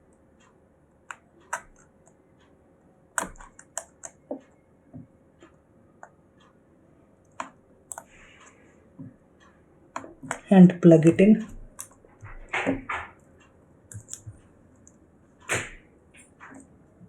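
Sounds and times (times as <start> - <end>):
fingers tapping laptop screen panel: 3.2 - 5.1.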